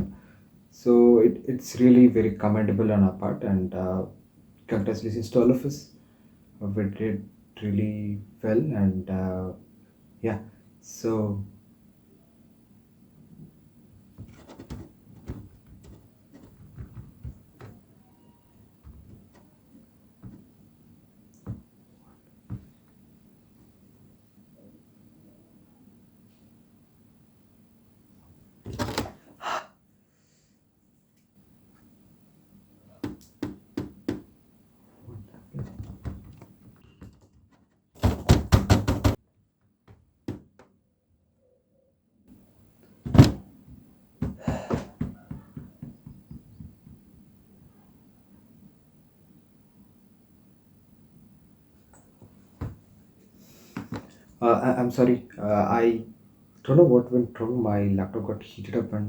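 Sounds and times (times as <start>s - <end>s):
knocking: 14.2s - 17.8s, 33.0s - 34.3s, 38.0s - 39.2s, 44.2s - 47.0s
soft taps and clatter: 14.2s - 17.8s, 43.1s - 47.2s
irregular clicks and knocks: 14.2s - 17.9s
loud thumps: 38.0s - 39.2s, 43.0s - 47.0s.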